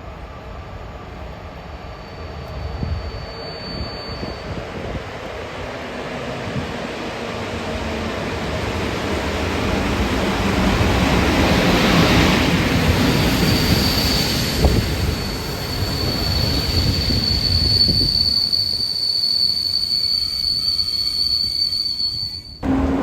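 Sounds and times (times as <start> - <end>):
train rumbling: 0.0 - 19.2, 22.5 - 23.0
high wheel squeal: 1.8 - 5.2, 11.6 - 23.0.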